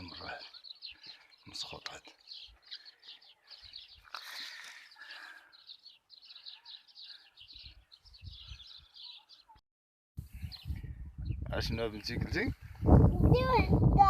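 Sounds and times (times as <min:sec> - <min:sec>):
small bird chirping: 0:00.0 - 0:09.6.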